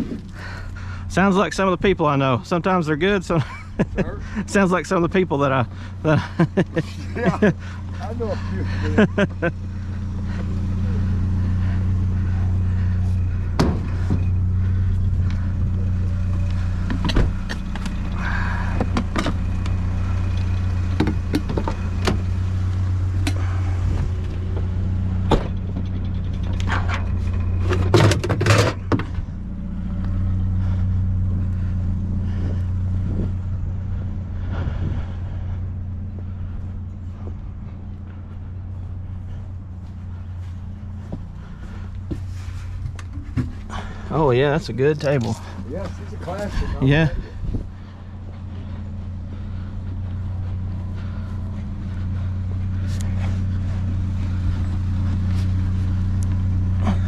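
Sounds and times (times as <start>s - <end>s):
vehicle engine idling: 0.0s - 57.0s
knocks and clunks of handling: 20.9s - 22.3s, 24.5s - 29.2s, 41.9s - 44.0s.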